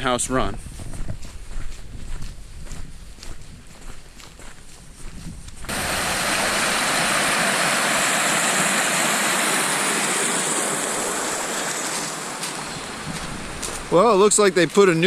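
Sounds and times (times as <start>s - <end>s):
faint footsteps on a trail: 0.0s - 5.7s, 11.9s - 15.0s
creek water rushing: 5.7s - 15.0s.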